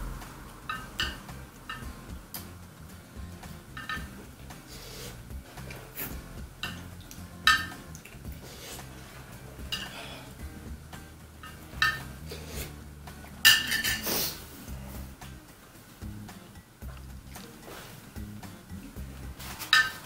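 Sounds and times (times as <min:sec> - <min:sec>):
utensils clinking on soup bowl: 0:03.7 - 0:04.1, 0:07.5 - 0:07.9, 0:09.7 - 0:10.2, 0:11.4 - 0:12.1, 0:13.5 - 0:14.4, 0:19.5 - 0:20.0.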